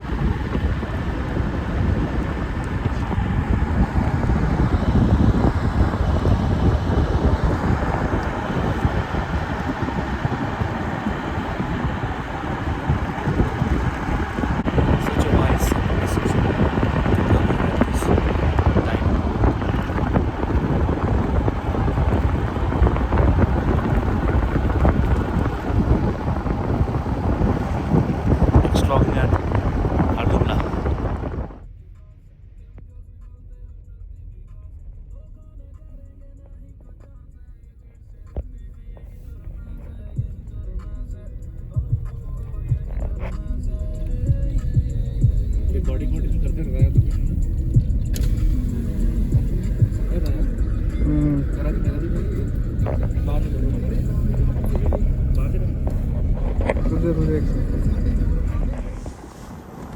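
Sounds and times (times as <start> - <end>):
wind buffeting microphone: 0.0 - 31.6, 38.2 - 59.9.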